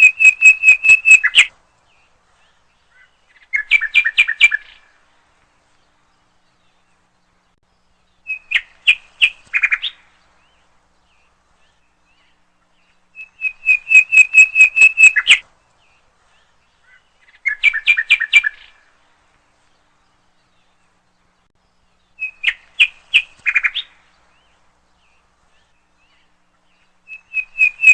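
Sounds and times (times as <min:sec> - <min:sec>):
songbird quick repeated chirps: 0:00.0 - 0:02.1, 0:02.8 - 0:04.8, 0:08.2 - 0:10.4, 0:13.1 - 0:15.4, 0:22.1 - 0:26.2, 0:26.8 - 0:27.9.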